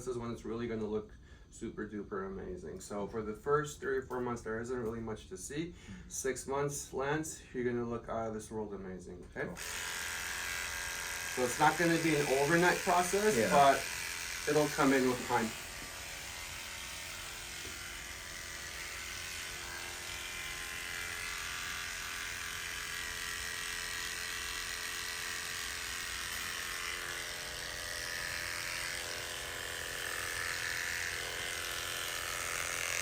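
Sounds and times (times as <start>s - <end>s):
electric hair clipper buzzing: 9.6s - 33.0s.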